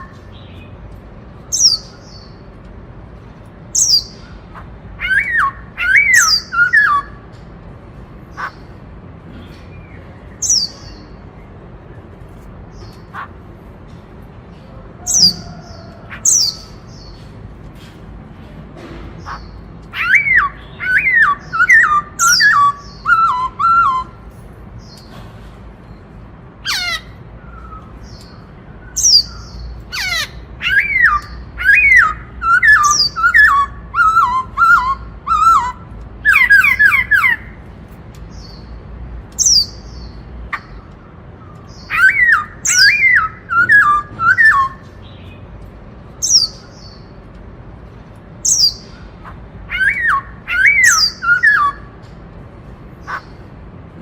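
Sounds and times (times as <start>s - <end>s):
sharp high bird calls: 3.8s - 7.3s, 8.2s - 8.8s, 19.2s - 25.1s, 26.6s - 37.7s, 39.4s - 45.4s, 48.4s - 52.0s, 52.9s - 53.5s.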